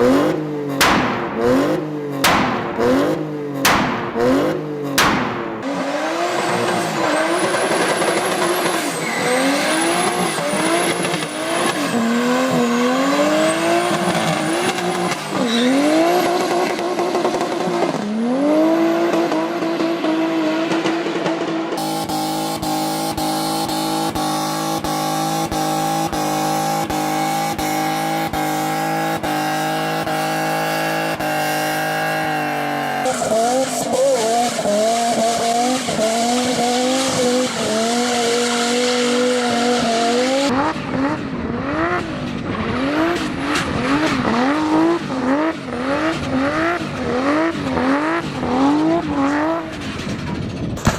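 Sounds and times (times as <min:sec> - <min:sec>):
car engine revving: 0:00.0 - 0:50.3
tyre squeal: 0:06.2 - 0:16.6.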